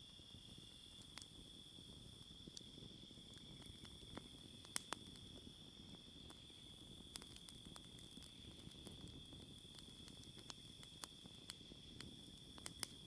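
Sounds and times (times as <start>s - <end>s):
campfire crackling and popping: 0.0s - 13.0s
crickets trilling: 0.0s - 13.0s.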